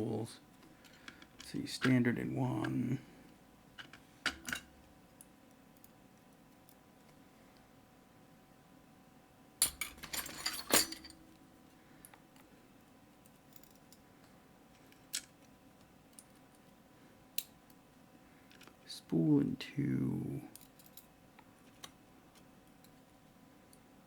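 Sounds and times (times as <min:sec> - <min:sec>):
metal lock parts clinking: 0:09.6 - 0:11.2.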